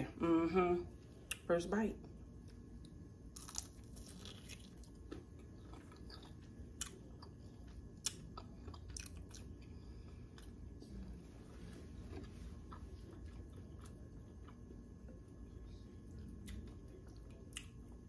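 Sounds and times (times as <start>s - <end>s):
crunchy chewing: 3.3s - 10.8s.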